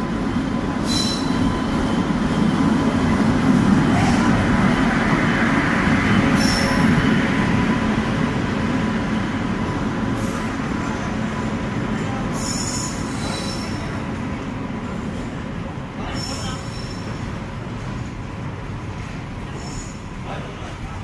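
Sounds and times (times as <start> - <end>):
train rumbling: 0.0 - 21.0
high-pitched wheel squeals: 0.8 - 1.6, 12.4 - 13.9, 16.1 - 17.2.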